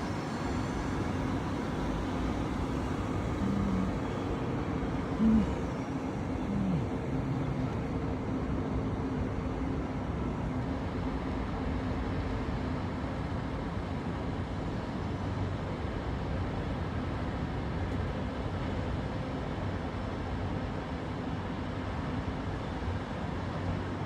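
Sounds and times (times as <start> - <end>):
higher humming tone: 0.0 - 9.2
heavy machinery humming: 0.0 - 11.3.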